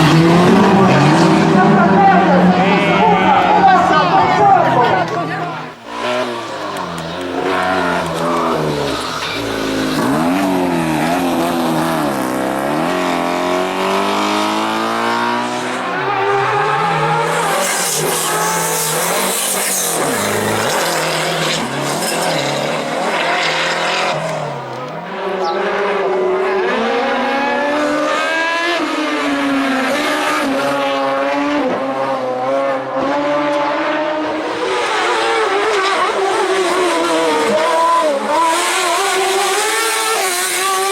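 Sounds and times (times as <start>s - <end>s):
car engines revving: 0.0s - 40.9s
tyre squeal: 5.8s - 11.8s, 15.6s - 25.6s.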